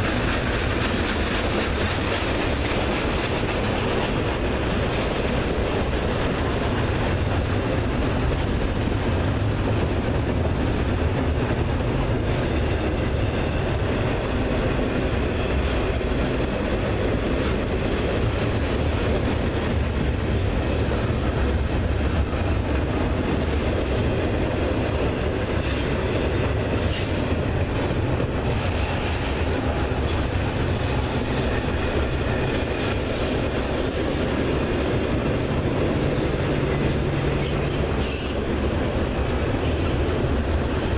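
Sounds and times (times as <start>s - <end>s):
railroad wheels rumbling on rails: 0.0s - 40.9s
high wheel squeals: 37.4s - 39.0s.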